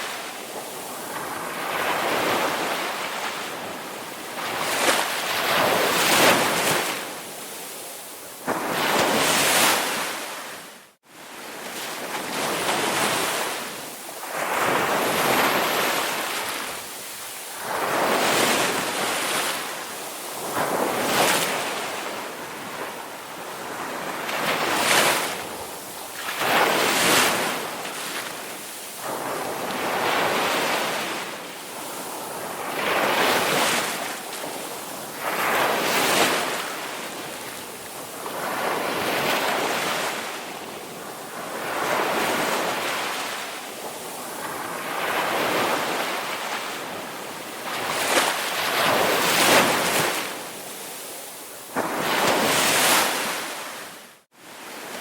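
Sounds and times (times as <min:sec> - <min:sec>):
ocean waves breaking: 0:23.6 - 0:55.0.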